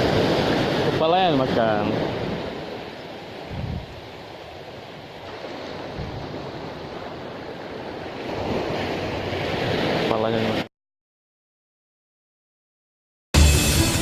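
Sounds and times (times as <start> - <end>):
wind buffeting microphone: 0.0 - 10.6
sea surf washing ashore: 0.0 - 10.7.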